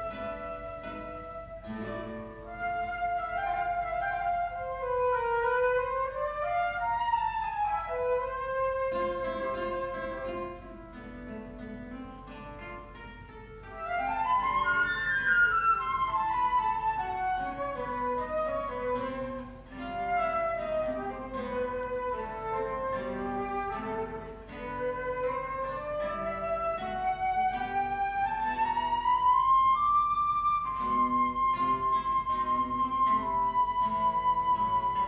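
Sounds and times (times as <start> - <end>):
flute melody: 0.0 - 11.4, 13.6 - 35.0
plucked guitar: 0.0 - 35.0.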